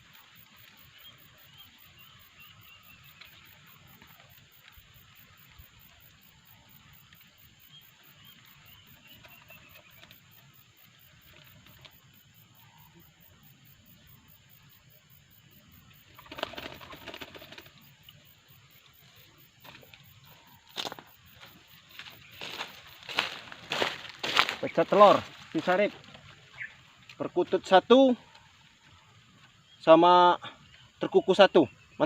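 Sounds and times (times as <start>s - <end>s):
small bird chirping: 0.0s - 27.5s
dove wings flapping: 3.0s - 6.2s, 8.4s - 12.4s, 15.9s - 27.2s.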